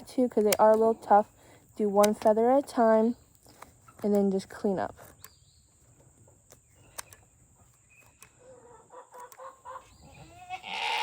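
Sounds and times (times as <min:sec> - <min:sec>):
poultry calling softly: 0:08.4 - 0:11.0.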